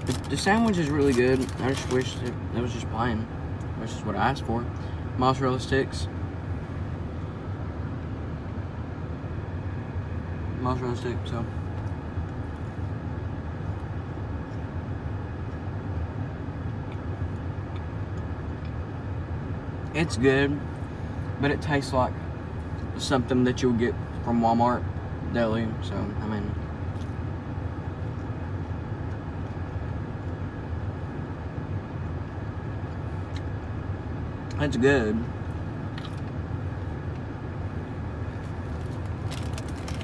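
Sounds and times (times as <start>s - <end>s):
car engine rumble: 0.0s - 40.0s
car engine idling: 32.2s - 40.0s.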